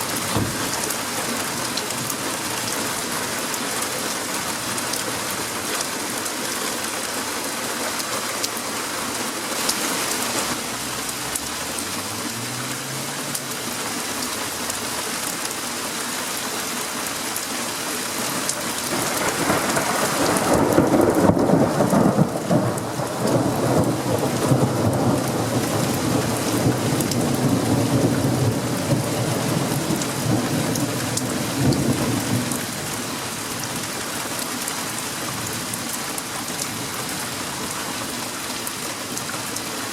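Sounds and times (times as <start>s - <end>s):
steady rain hissing: 0.0s - 39.9s
thunder rumbling: 18.8s - 32.6s.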